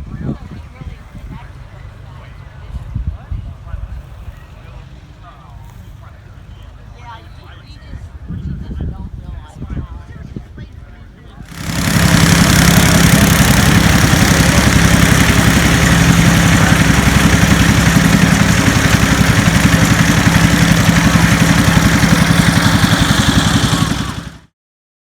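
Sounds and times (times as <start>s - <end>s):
vehicle engine idling: 11.5s - 24.5s.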